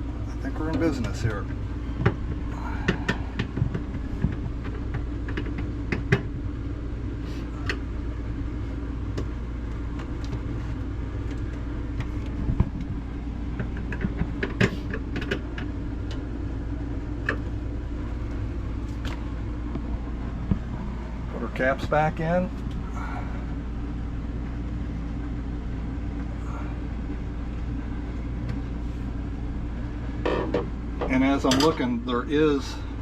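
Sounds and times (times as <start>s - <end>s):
refrigerator hum: 0.0s - 33.0s
parts clicking inside refrigerator: 2.0s - 6.3s, 11.2s - 16.3s.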